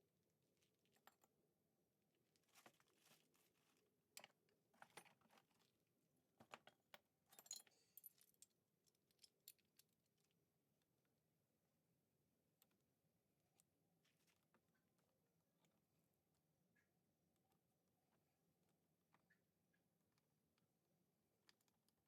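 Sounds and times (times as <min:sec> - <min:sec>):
metal tools clinking on casing: 0:07.3 - 0:08.5.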